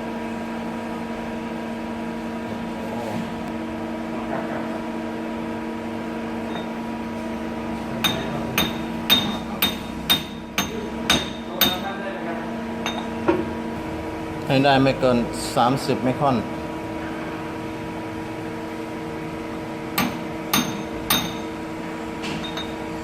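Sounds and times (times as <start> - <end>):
lathe running with hum: 4.8 - 23.0.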